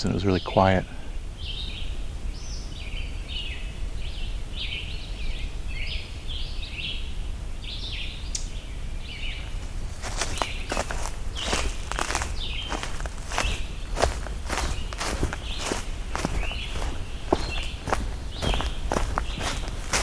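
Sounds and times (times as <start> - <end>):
footsteps on trail: 9.4 - 20.0.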